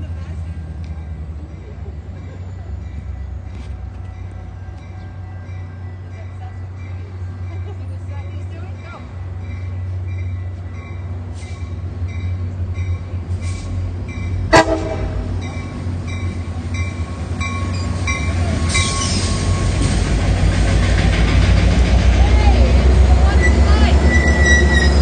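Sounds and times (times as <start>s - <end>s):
diesel train rumble: 0.0s - 25.0s
crossing bell ringing: 0.4s - 13.3s, 13.9s - 20.2s.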